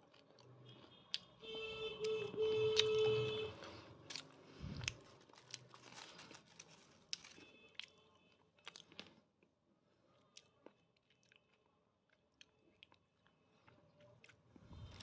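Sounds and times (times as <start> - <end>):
crunchy chewing: 2.8 - 9.2.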